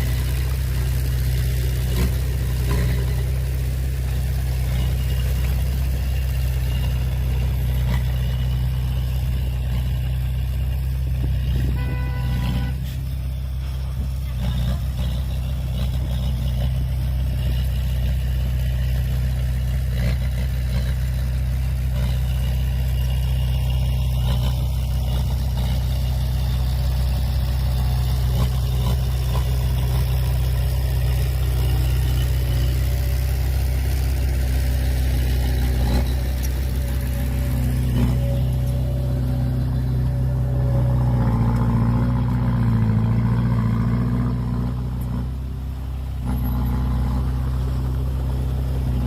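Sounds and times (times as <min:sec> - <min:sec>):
heavy diesel engine humming: 0:00.0 - 0:49.0.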